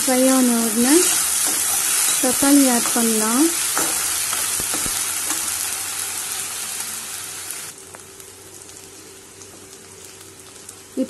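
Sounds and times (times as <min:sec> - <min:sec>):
onions sizzling in hot oil: 0:00.0 - 0:11.0
steel spatula stirring: 0:00.3 - 0:05.8.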